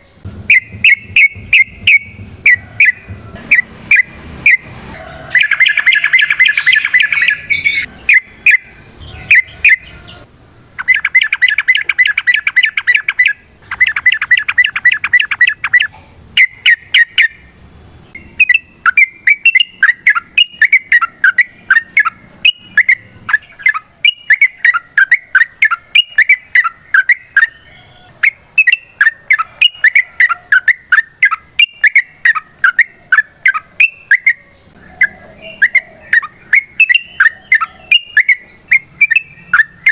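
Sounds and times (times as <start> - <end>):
quick bird chirps: 0.0 - 10.2, 10.8 - 17.4, 18.0 - 39.9
bird chattering rattles: 0.4 - 4.6, 10.8 - 17.3.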